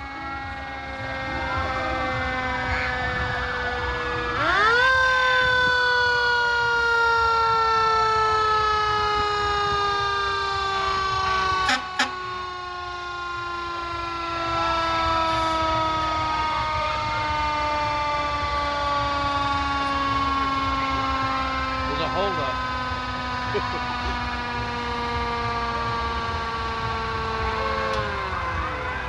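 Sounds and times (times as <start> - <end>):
sirens wailing: 0.0 - 29.0
short loud horn blasts: 11.6 - 12.3.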